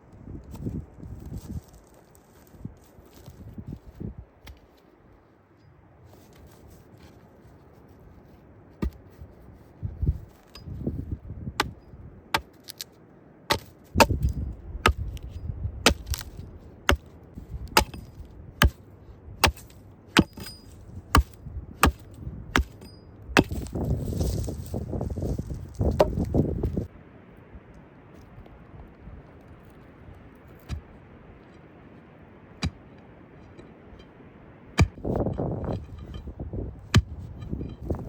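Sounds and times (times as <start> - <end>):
chopping strikes on wood: 8.8 - 9.0, 13.5 - 15.2, 15.9 - 17.1, 17.7 - 18.8, 19.4 - 20.5, 21.1 - 22.8, 23.4 - 23.8, 32.6 - 32.8, 34.8 - 35.2, 36.9 - 37.2.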